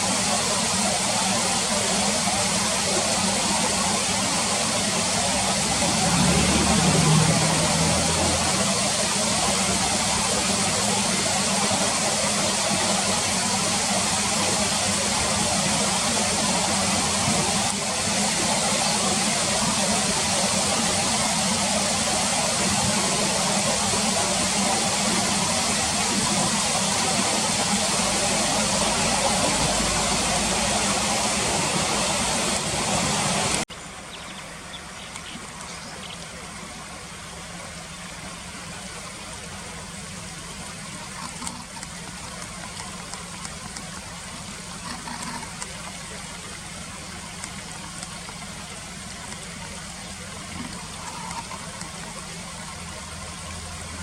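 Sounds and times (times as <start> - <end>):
river current rushing: 0.0 - 54.0.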